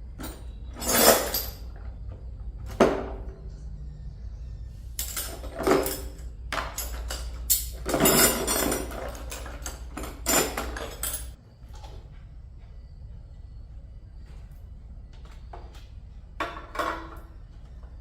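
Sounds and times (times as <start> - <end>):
metal tools clattering: 0.2 - 2.0, 5.0 - 11.4.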